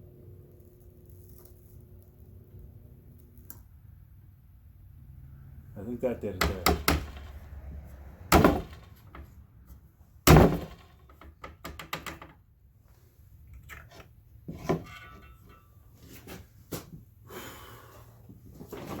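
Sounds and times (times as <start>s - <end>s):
knocks and clicks of tools: 6.4s - 7.4s, 10.3s - 12.4s
loud thunks: 8.3s - 9.3s, 10.2s - 11.0s.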